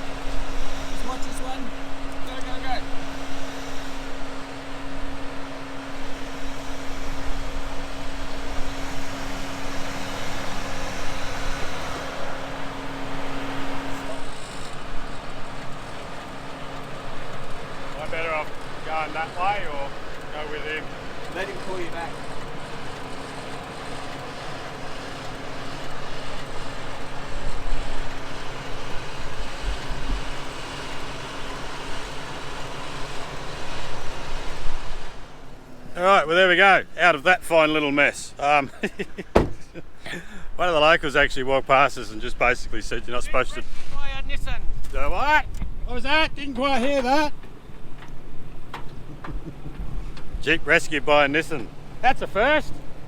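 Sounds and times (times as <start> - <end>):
rough vehicle rumble: 0.0 - 53.0
vehicle whine: 0.0 - 53.0
wind and surf hiss: 19.9 - 53.0.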